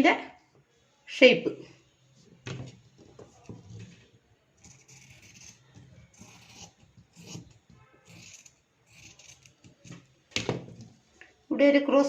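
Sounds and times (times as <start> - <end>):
scissors cutting cloth: 4.6 - 10.1.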